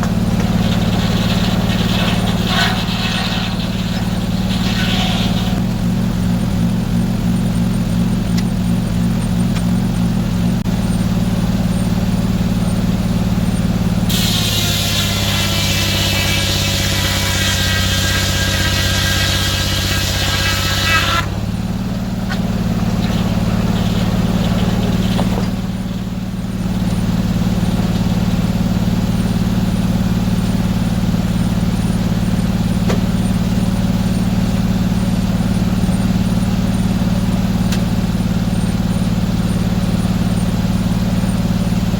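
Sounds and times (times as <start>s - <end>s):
saw blade cutting log: 0.0s - 10.6s, 13.5s - 34.4s
sawmill engine running: 0.0s - 41.9s.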